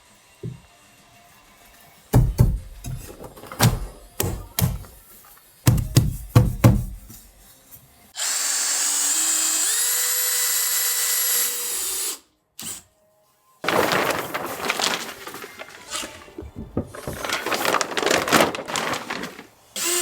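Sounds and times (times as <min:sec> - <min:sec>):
sharp knocks: 0:02.2 - 0:04.9
power drill whining: 0:19.8 - 0:20.0.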